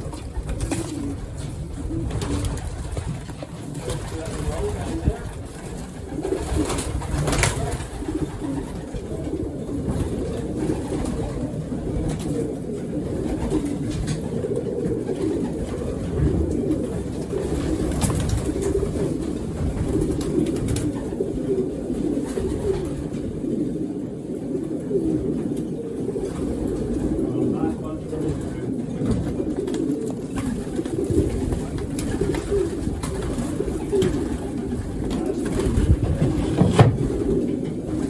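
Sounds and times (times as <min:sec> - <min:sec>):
pigeons cooing: 0:00.0 - 0:38.0.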